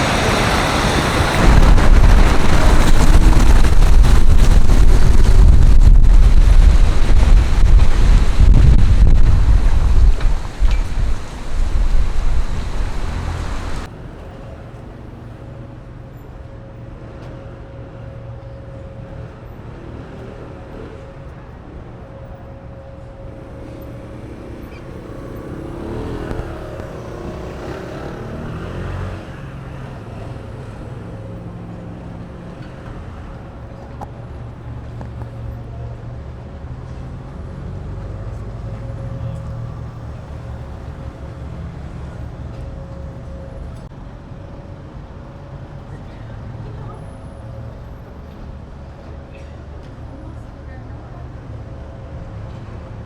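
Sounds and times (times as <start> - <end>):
vehicle passing: 0.0 - 14.3, 23.3 - 33.6
car engines rumbling: 0.0 - 53.0.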